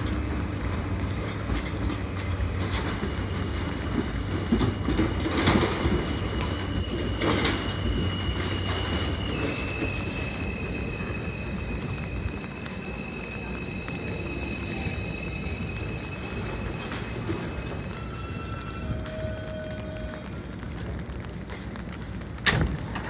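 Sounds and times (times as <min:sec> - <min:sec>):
wheel clacks over rail joints: 0:00.0 - 0:12.8
subway train rumbling: 0:00.0 - 0:23.0.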